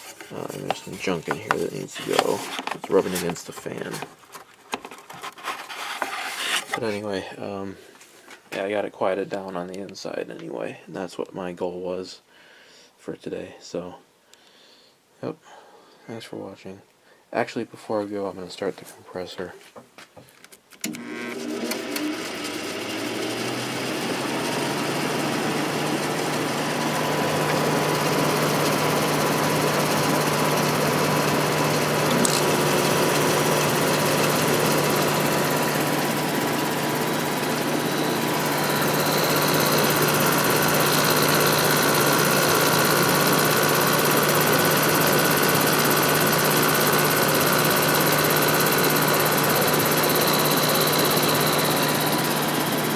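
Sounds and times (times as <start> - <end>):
fan bearing noise and rubbing: 0.0 - 7.1
air conditioner compressor hum: 0.0 - 11.1, 21.4 - 52.9
high whine: 32.0 - 45.5.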